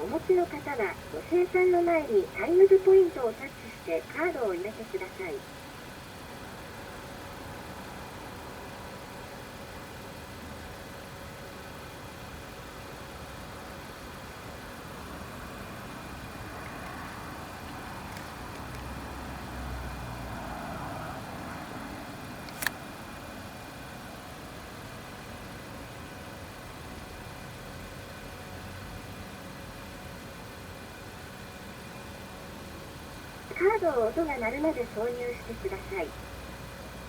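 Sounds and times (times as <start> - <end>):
car engine idling: 0.0 - 37.0
sharp click: 22.5 - 22.8.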